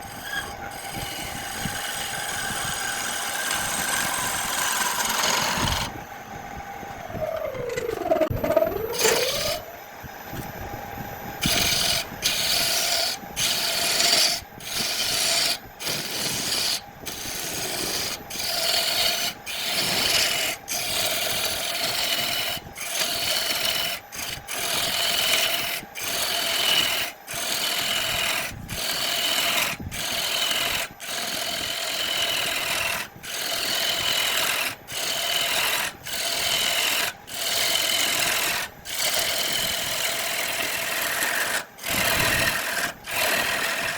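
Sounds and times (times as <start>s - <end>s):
hand tool scraping on wood: 11.4s - 43.9s.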